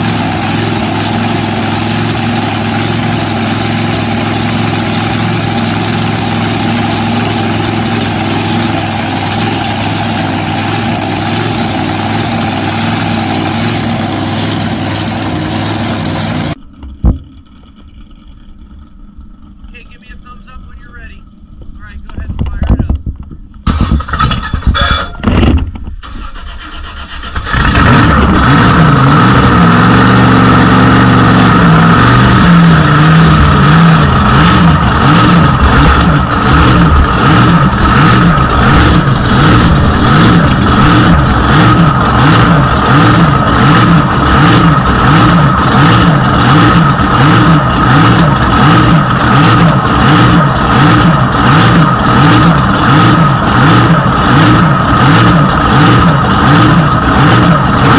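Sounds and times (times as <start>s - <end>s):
boat engine idling: 0.0s - 22.4s, 30.2s - 57.9s.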